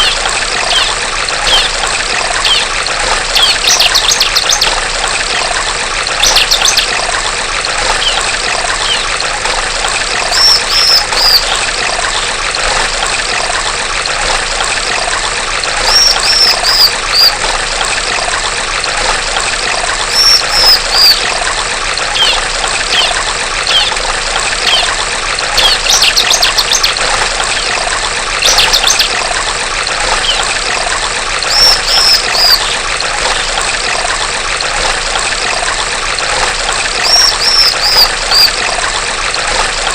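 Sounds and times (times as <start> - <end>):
bird trills and chirps: 0.0 - 1.8, 2.4 - 2.7, 3.3 - 4.8, 6.2 - 7.0, 8.0 - 9.1, 10.3 - 11.6, 15.8 - 17.4, 20.1 - 21.3, 22.2 - 24.0, 24.6 - 24.9, 25.6 - 27.0, 28.4 - 29.2, 30.1 - 30.5, 31.5 - 33.5, 37.0 - 38.6
trickling stream water: 0.0 - 39.9.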